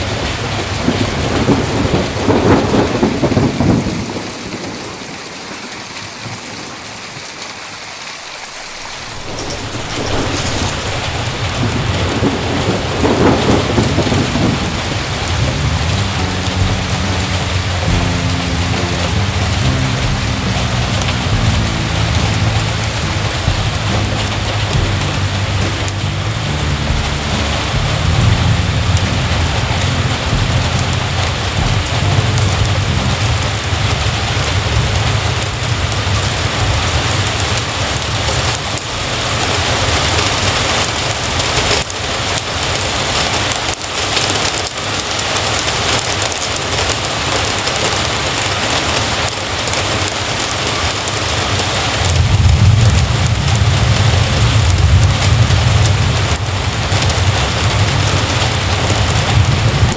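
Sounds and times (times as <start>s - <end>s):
thunder rumbling: 0.0s - 6.7s, 8.3s - 43.6s, 45.7s - 59.9s
heavy rain: 0.0s - 59.9s.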